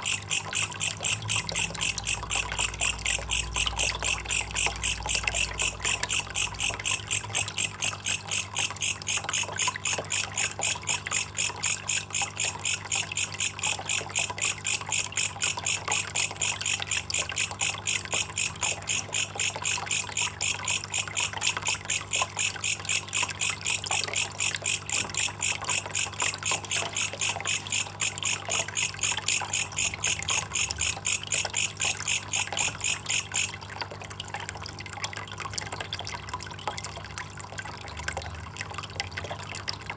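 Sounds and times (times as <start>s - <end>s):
insect chirping: 0.0s - 33.6s
faint trickle of water: 0.0s - 39.9s.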